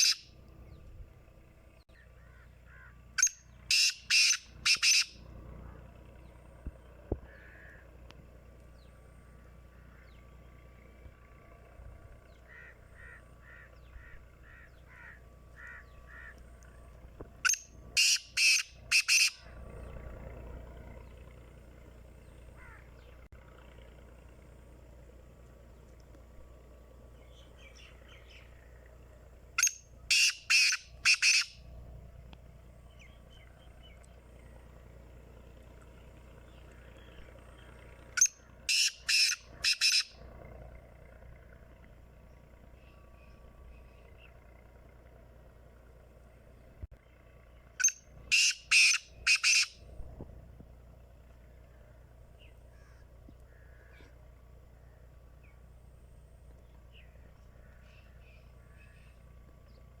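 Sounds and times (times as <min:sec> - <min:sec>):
francolin harsh rasping call: 0:00.0 - 0:00.4, 0:02.0 - 0:05.9, 0:07.3 - 0:08.0, 0:09.6 - 0:10.2, 0:12.4 - 0:16.4, 0:17.4 - 0:20.0, 0:22.3 - 0:23.1, 0:29.6 - 0:31.7, 0:36.4 - 0:40.3, 0:47.8 - 0:49.8, 0:52.4 - 0:54.2
small bird chirps: 0:00.0 - 0:00.8, 0:03.2 - 0:05.2, 0:29.6 - 0:31.6.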